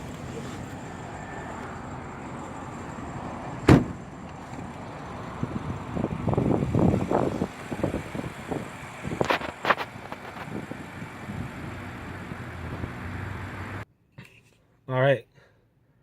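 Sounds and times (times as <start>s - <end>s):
car door shutting thud: 3.6s - 4.0s.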